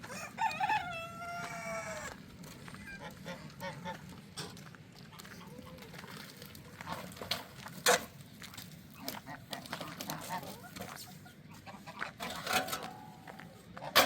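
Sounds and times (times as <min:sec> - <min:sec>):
rooster crowing: 0:00.0 - 0:02.2
poultry calling: 0:00.0 - 0:04.2, 0:08.9 - 0:14.0.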